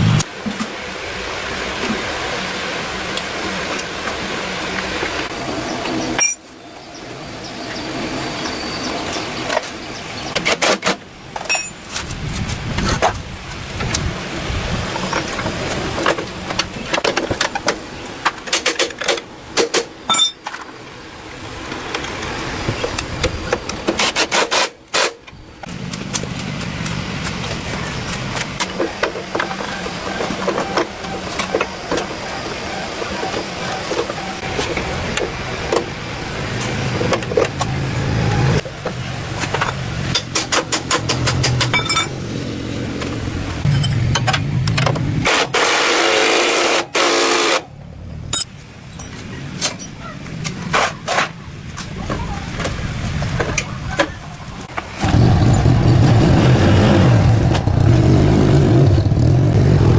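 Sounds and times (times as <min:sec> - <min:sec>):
loud rushing noise: 0:00.0 - 0:16.5, 0:31.2 - 0:49.6, 0:54.6 - 0:59.9.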